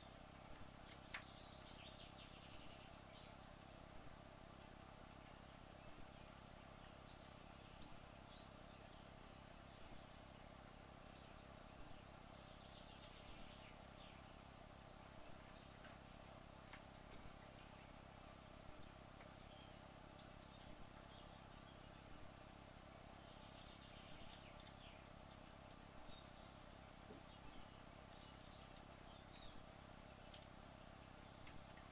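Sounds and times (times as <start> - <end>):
faint steady hum: 0.0 - 31.9
soft faint ticks: 0.3 - 1.4, 7.8 - 8.0, 12.8 - 13.3, 15.7 - 17.9, 18.8 - 19.5, 20.1 - 21.2, 23.6 - 25.8, 28.2 - 29.6, 30.2 - 30.6, 31.3 - 31.9.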